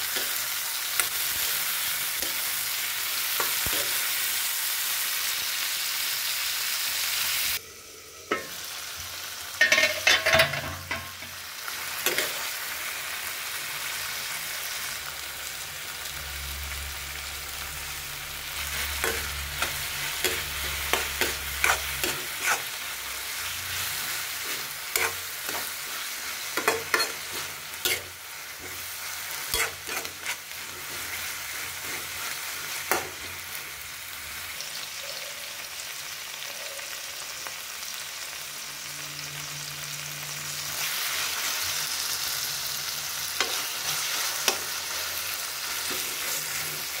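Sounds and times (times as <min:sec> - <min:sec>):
vegetables sizzling in frying pan: 0:00.0 - 0:47.0
spatula scraping and tapping pan: 0:18.9 - 0:22.7.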